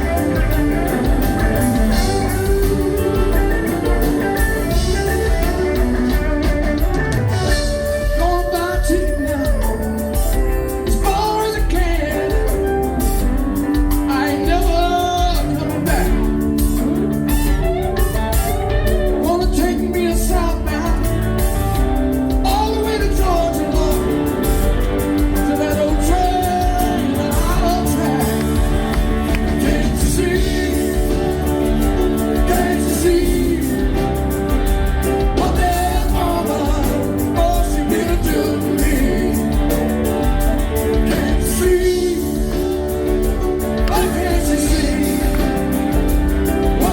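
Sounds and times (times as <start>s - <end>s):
melodic lead guitar line: 0.0s - 46.9s
rock band playing live: 0.0s - 46.9s.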